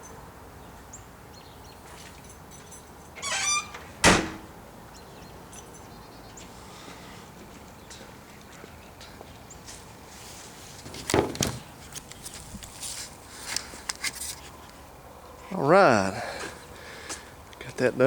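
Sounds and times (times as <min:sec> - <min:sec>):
high creaking squeak: 0:03.2 - 0:03.9.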